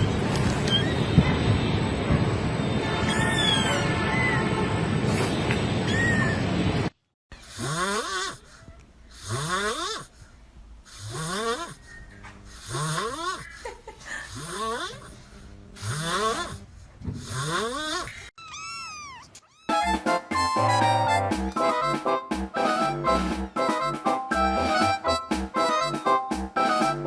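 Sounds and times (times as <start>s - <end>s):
kitten snoring: 7.4s - 8.4s, 9.1s - 10.1s, 10.9s - 11.8s, 12.5s - 13.4s, 14.3s - 15.1s, 15.8s - 16.6s, 17.2s - 18.1s
music: 19.7s - 27.0s.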